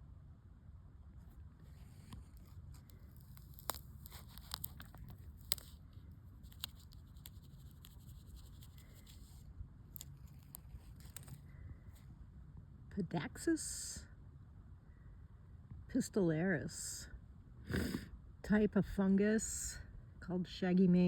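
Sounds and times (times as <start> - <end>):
low steady rumble: 0.0 - 21.0
faint clicks and crackles: 1.2 - 12.1.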